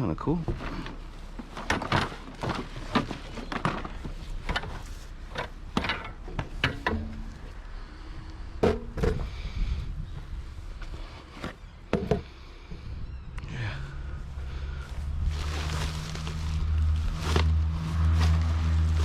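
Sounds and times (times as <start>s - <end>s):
junk knocking and clunking: 0.4s - 7.8s, 8.5s - 12.9s.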